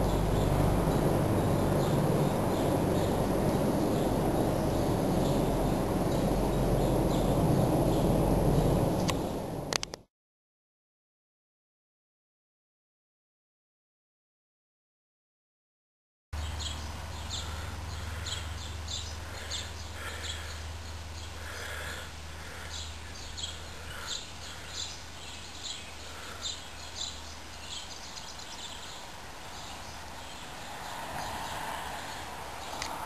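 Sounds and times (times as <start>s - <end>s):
small birds chirping: 0.0s - 9.5s, 16.4s - 33.0s
steady low hum: 0.0s - 10.1s, 16.4s - 33.0s.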